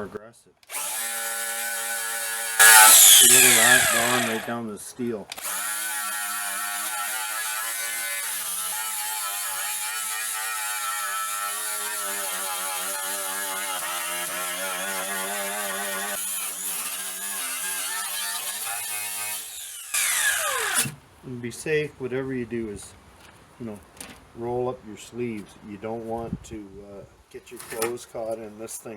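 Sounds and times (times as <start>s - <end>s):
grinder motor whine: 0.7s - 4.5s, 19.3s - 21.0s
wire brush scratching metal: 2.6s - 4.5s.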